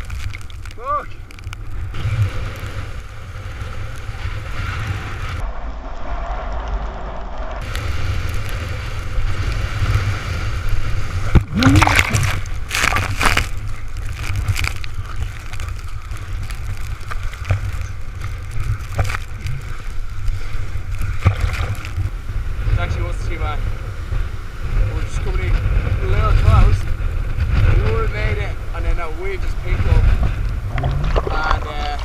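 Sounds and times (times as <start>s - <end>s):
waves splashing: 0.0s - 5.4s, 7.6s - 27.0s
wind buffeting microphone: 0.0s - 32.0s.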